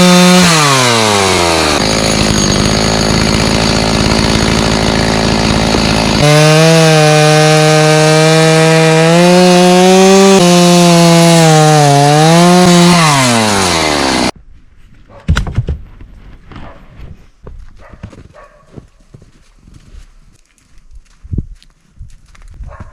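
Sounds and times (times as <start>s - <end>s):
chainsaw cutting wood: 0.0s - 14.4s.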